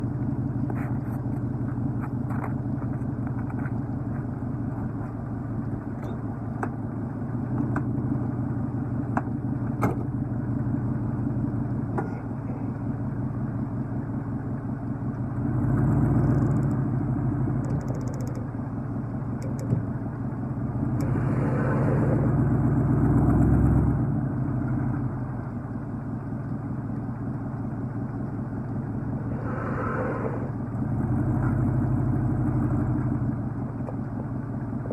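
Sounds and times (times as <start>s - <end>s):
truck engine revving: 20.8s - 24.2s, 28.7s - 32.9s.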